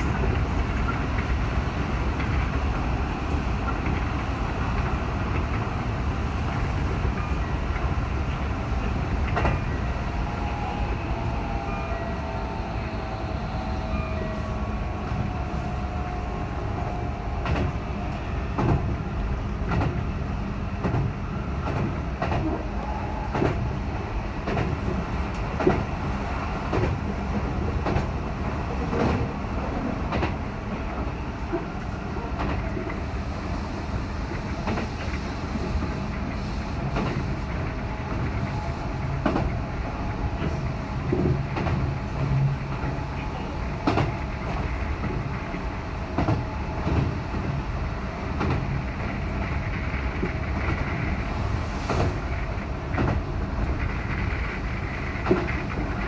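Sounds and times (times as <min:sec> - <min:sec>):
electric train rumble: 0:00.0 - 0:56.0
wheels clicking over rail joints: 0:52.8 - 0:56.0.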